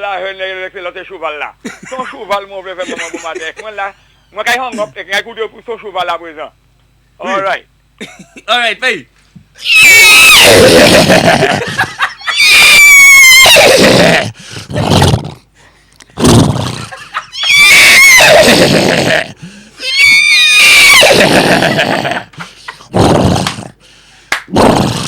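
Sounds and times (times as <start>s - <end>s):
man imitating horse whinnies: 9.6s - 11.6s, 12.3s - 15.3s, 16.2s - 22.2s.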